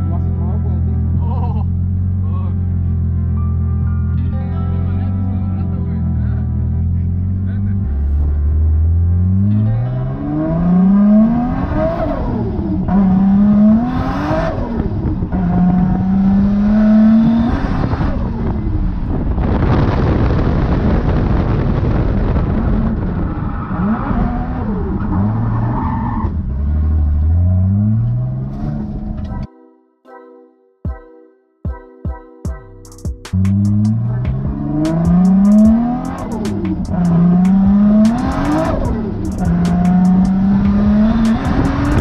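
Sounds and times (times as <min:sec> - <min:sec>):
car engine revving hard: 0:07.2 - 0:29.2, 0:33.4 - 0:42.0.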